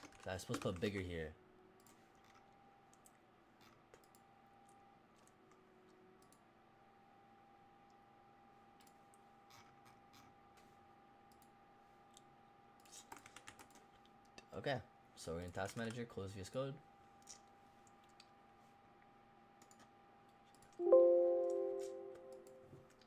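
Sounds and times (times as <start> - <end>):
computer mouse and keyboard clicks: 0.0 - 1.2, 1.8 - 6.5, 8.7 - 14.5, 15.4 - 16.1, 17.2 - 18.4, 19.6 - 20.8.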